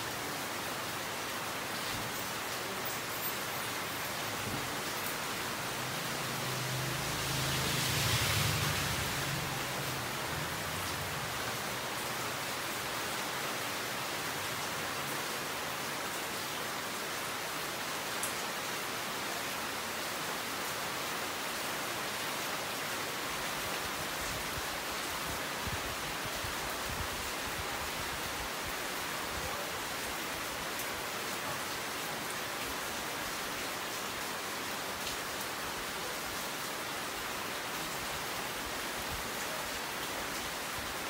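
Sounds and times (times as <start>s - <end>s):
steady rain falling: 0.0s - 41.0s.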